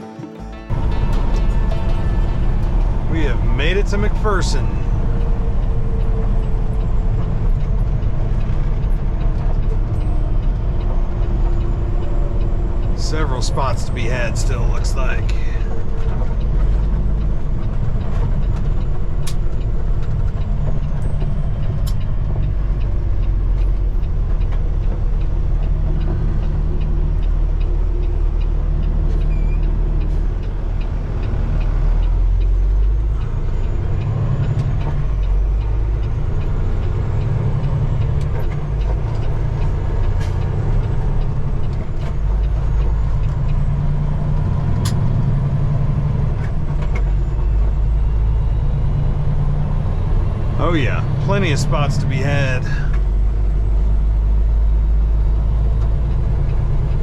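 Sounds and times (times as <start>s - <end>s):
diesel truck engine rumbling: 0.0s - 57.0s.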